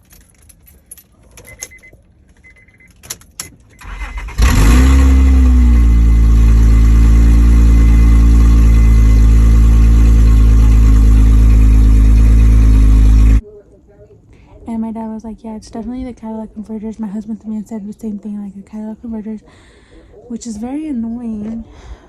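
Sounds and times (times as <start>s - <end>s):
van engine starting and idling: 0.0s - 13.4s.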